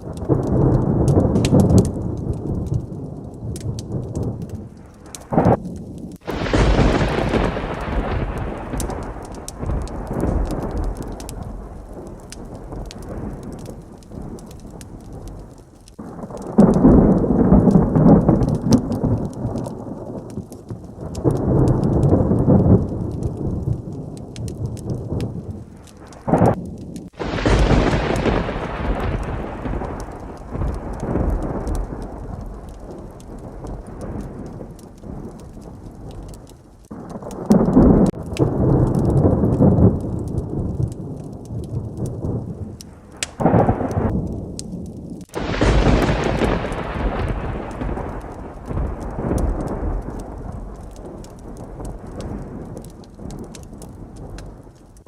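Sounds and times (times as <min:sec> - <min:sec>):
heavy rain: 0:00.0 - 0:55.0
sharp thunderclap: 0:00.0 - 0:55.0
thunder rumbling: 0:00.0 - 0:55.0.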